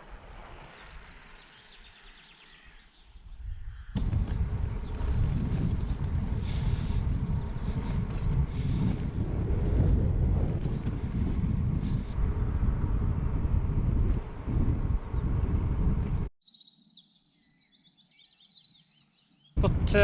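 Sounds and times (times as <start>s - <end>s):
wind buffeting microphone: 3.1s - 16.3s, 19.6s - 20.0s.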